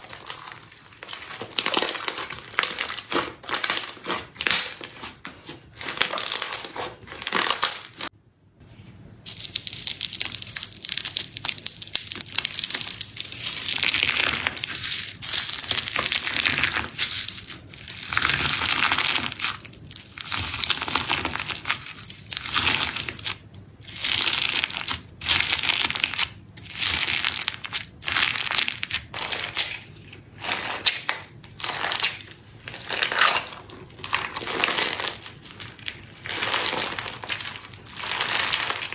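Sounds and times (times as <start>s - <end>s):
slime squished by hand: 0.0s - 8.1s.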